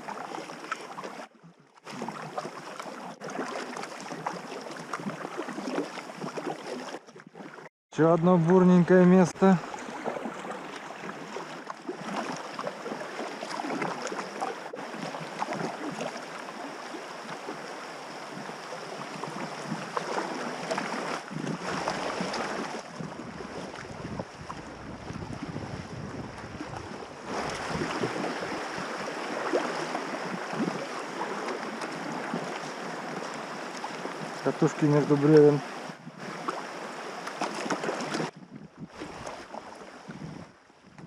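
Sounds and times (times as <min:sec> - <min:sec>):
river water rushing and splashing: 0:00.0 - 0:40.7
wind rumbling on microphone: 0:17.3 - 0:37.1, 0:37.8 - 0:41.0.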